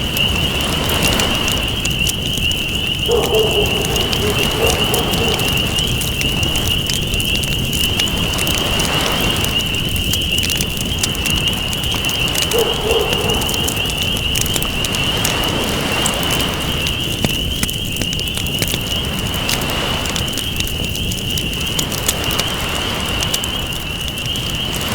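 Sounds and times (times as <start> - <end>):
ocean waves: 0.0 - 2.3, 3.0 - 6.7, 14.7 - 17.0, 19.0 - 20.3
wood fire crackling and popping: 0.0 - 24.9.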